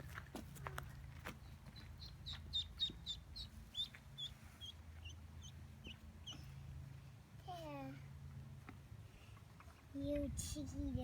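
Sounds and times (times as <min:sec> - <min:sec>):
duckling peeping: 0:01.4 - 0:06.5.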